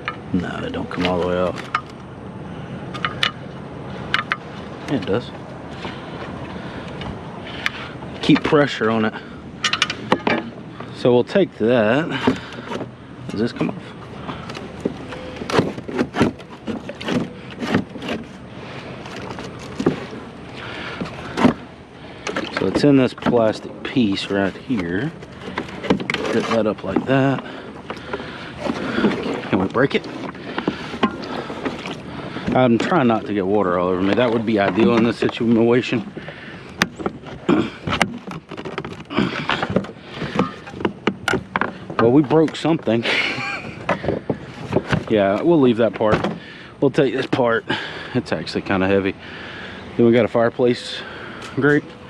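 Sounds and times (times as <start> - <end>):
scrap item being pried apart: 14.3 - 18.4, 20.9 - 23.6, 24.2 - 32.9.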